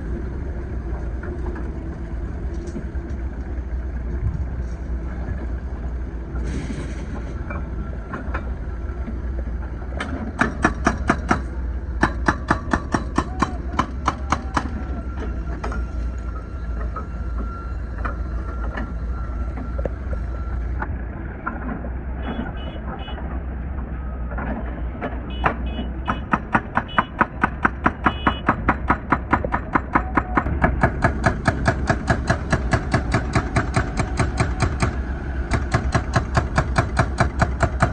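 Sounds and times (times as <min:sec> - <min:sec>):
diesel engine running: 0:00.0 - 0:37.9
hydraulic breaker hammering asphalt: 0:10.1 - 0:15.0, 0:25.4 - 0:37.9.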